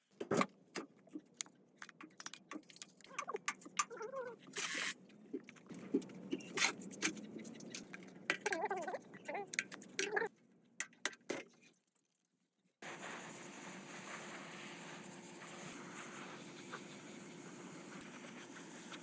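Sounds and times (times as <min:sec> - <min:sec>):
clicks and knocks of small parts: 0:00.2 - 0:04.0, 0:05.5 - 0:08.7
steady hiss: 0:12.8 - 0:19.0.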